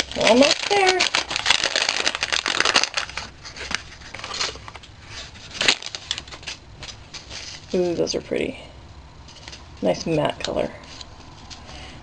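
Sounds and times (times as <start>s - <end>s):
wrapping being torn open: 0.0s - 6.6s.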